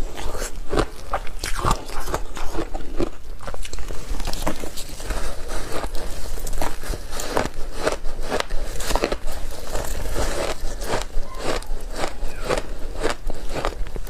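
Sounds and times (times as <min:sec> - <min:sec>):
ice crunching between teeth: 0:00.0 - 0:14.0.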